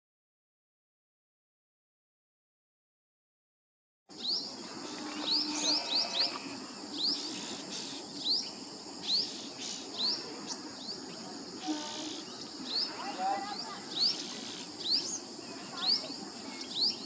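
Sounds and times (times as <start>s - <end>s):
bird chirping: 4.1s - 17.0s
insects hissing: 4.1s - 17.0s.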